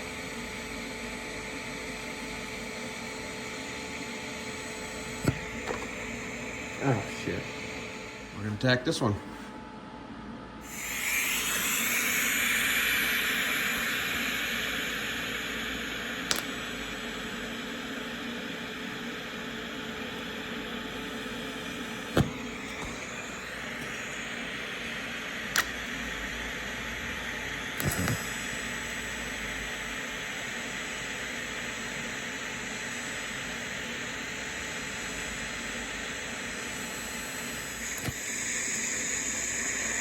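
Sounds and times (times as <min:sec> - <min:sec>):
arc welding hiss: 0:10.6 - 0:40.0
sharp clicks: 0:16.3 - 0:16.6, 0:25.6 - 0:25.8, 0:27.8 - 0:28.2, 0:37.9 - 0:38.2.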